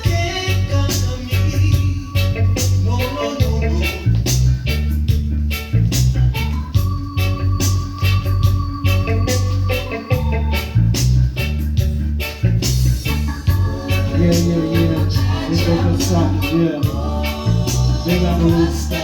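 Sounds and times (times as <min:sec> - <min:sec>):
person singing: 0:00.0 - 0:04.1, 0:13.5 - 0:19.0
reggae music with heavy bass: 0:00.0 - 0:19.0.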